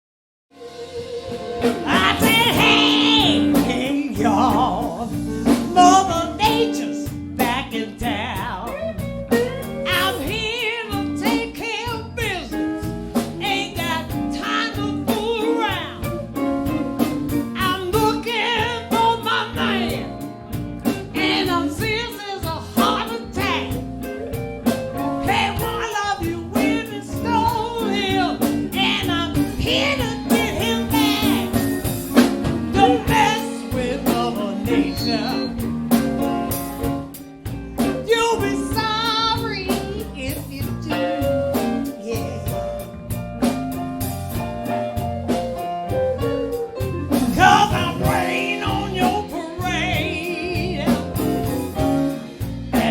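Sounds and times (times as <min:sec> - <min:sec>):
live band playing: 0:00.5 - 0:52.9
lead singer singing: 0:01.6 - 0:08.7, 0:17.6 - 0:23.8, 0:25.3 - 0:36.0, 0:47.0 - 0:52.9.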